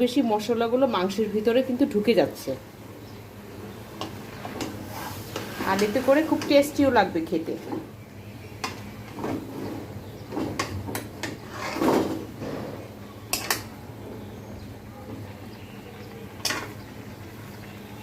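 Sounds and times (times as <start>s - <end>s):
utensil scraping a pan: 4.5s - 6.7s, 8.6s - 13.6s.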